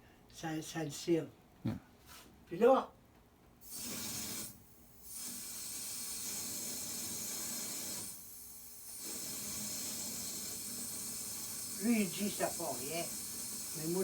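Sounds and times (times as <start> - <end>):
water hissing through valve: 3.6 - 14.0.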